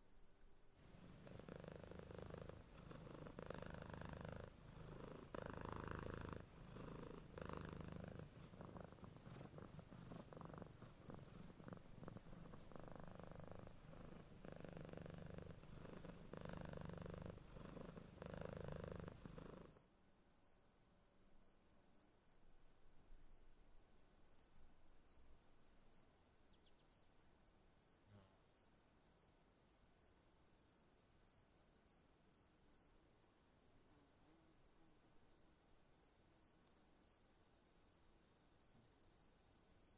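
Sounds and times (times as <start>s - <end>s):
crickets chirping: 0.1s - 20.8s
cat purring: 0.8s - 19.8s.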